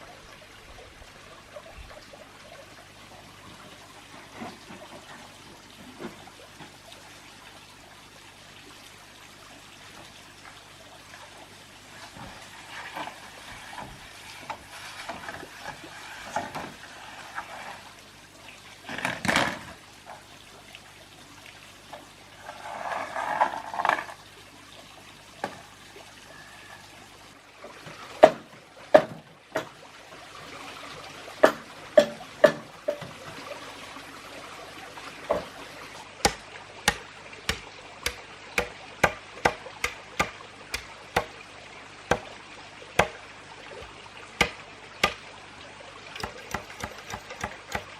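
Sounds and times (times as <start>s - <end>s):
water pouring and trickling: 0.0s - 47.9s
sharp knocks: 31.4s - 33.1s, 36.2s - 41.4s.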